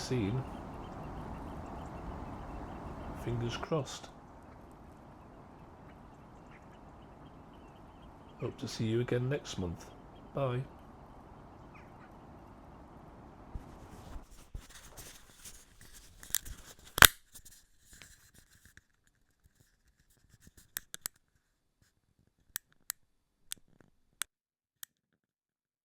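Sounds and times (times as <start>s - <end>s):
scratchy rustling: 13.5s - 18.8s.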